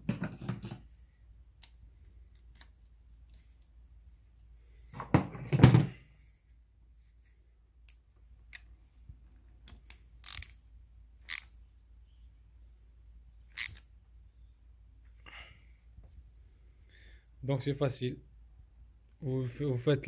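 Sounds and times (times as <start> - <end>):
sharp tool clicks: 9.8 - 10.6, 11.2 - 11.5, 13.5 - 13.8.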